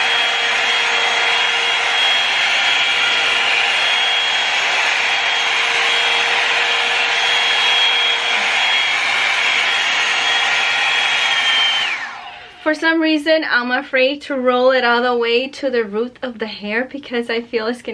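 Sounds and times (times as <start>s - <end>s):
hair dryer motor whining: 0.0s - 13.0s.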